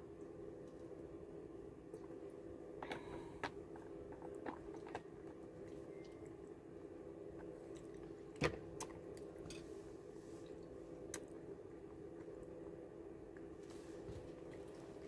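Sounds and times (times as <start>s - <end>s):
steady low hum: 0.0s - 15.0s
person chewing food: 2.8s - 6.3s, 7.2s - 9.5s.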